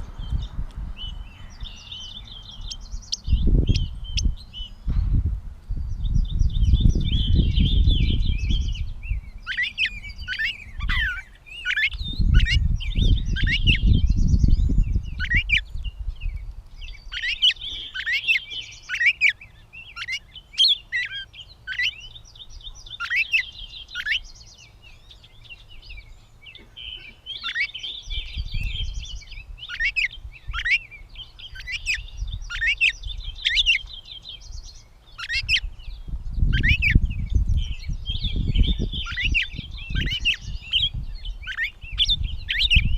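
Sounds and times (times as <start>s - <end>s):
bird singing squeaky notes: 5.8s - 42.9s.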